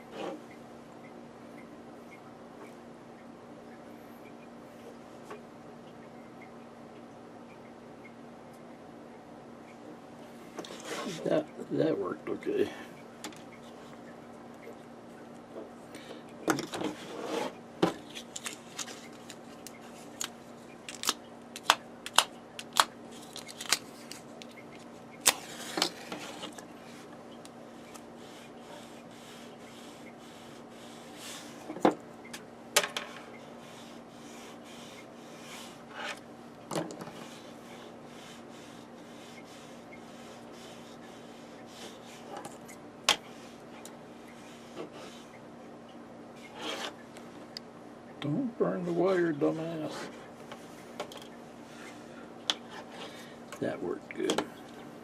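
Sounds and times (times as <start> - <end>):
steady low hum: 0.0 - 55.0
clicks and taps handling wires: 17.8 - 26.7, 53.5 - 54.5.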